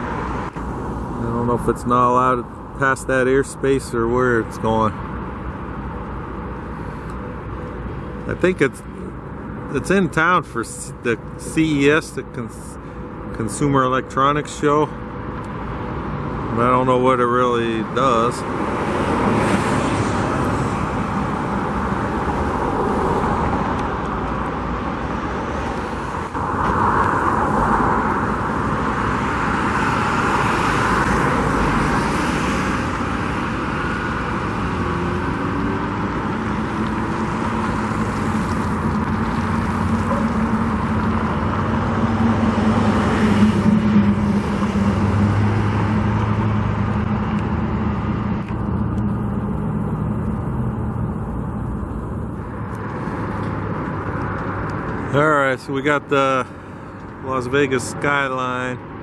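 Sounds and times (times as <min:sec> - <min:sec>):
cars passing: 0:00.0 - 0:59.0
engine hum: 0:00.0 - 0:59.0
louder vehicle passing: 0:15.5 - 0:59.0.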